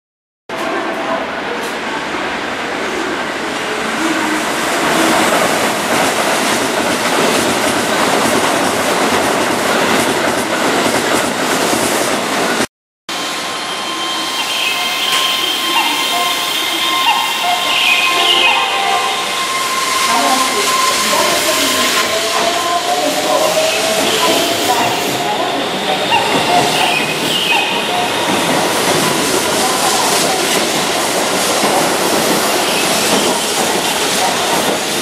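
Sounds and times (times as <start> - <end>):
train wheels over rails: 0.5 - 12.7, 19.2 - 35.0
electric train passing: 0.8 - 35.0
steady high tones: 13.3 - 28.4.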